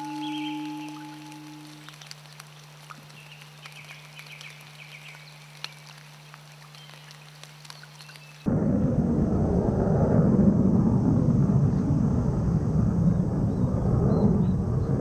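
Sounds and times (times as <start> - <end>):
soft chirping trills: 0.0 - 5.9
steady low hum: 8.5 - 15.0.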